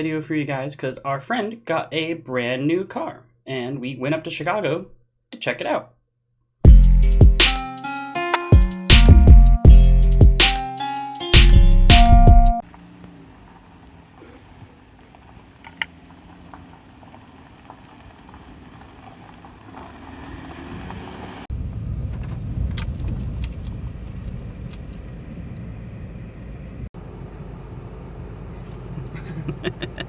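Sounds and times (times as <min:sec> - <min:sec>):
traffic noise: 0:12.6 - 0:30.0
small metallic clicks and jingles: 0:15.6 - 0:16.6.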